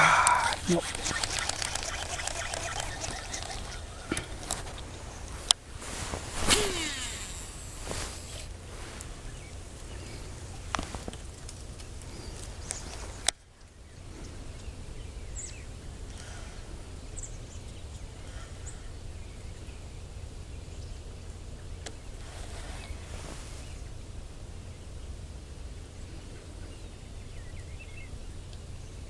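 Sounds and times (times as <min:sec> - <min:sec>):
high bird chirps: 0:00.0 - 0:05.3
sharp clicks: 0:00.0 - 0:05.6.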